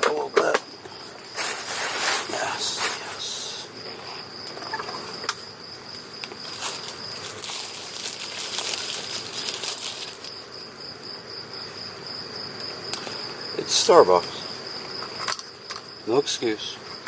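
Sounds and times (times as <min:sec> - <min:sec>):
crickets trilling: 0:00.0 - 0:17.0
close rustling and crinkling: 0:00.4 - 0:03.1, 0:03.8 - 0:10.7.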